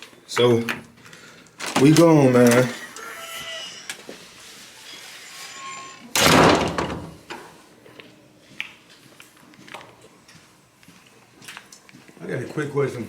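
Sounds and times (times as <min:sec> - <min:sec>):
door shutting with thud: 0:06.1 - 0:07.2.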